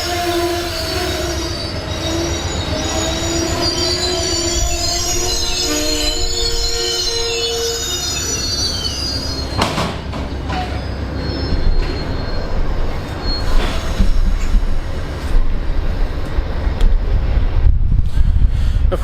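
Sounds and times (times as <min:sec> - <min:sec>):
faint wheel squeal: 0:00.0 - 0:14.8
train wheels rumbling on rail: 0:00.0 - 0:19.0.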